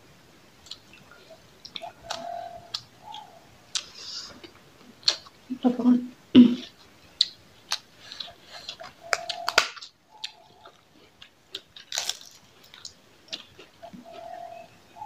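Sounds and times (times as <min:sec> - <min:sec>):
chewing: 0:03.7 - 0:05.3, 0:07.2 - 0:14.5
crunching fried snack: 0:07.7 - 0:10.0, 0:10.7 - 0:13.7.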